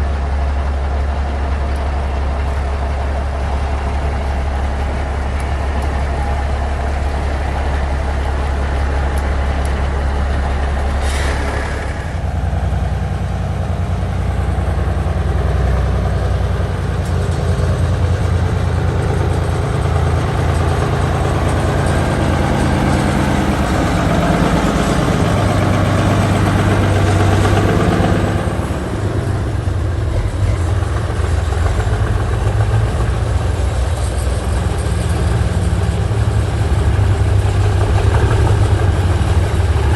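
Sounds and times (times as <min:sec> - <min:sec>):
diesel truck engines running: 0:00.0 - 0:39.9
short air hiss: 0:11.0 - 0:12.2.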